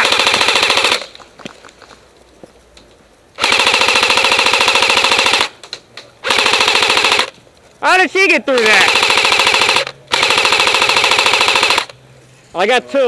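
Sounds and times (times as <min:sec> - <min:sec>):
airsoft rifle full auto bursts: 0:00.0 - 0:01.2, 0:03.4 - 0:05.6, 0:06.2 - 0:07.4, 0:08.5 - 0:12.0.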